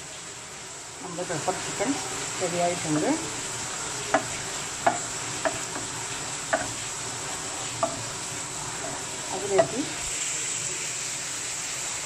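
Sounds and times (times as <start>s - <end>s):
chicken sizzling in a pan: 0.0s - 12.0s
utensil knocking against pan: 4.1s - 6.9s, 7.8s - 8.1s, 8.8s - 9.9s.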